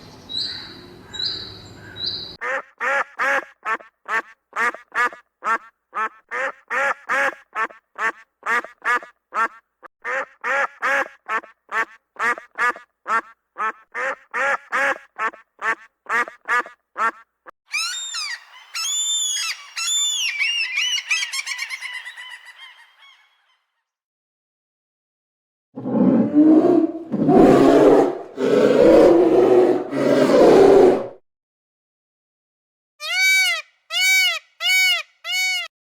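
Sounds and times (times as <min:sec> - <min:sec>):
birds honking: 0:02.4 - 0:17.2
duck quacking: 0:02.4 - 0:17.2.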